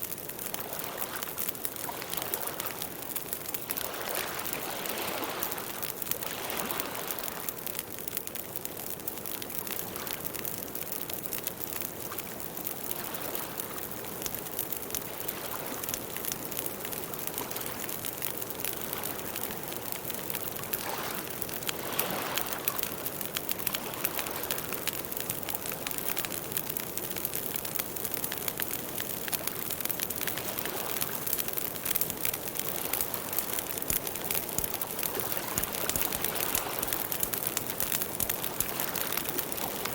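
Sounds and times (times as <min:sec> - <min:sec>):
campfire snaps and pops: 0:00.0 - 0:39.9
fire burning hiss: 0:22.4 - 0:39.9.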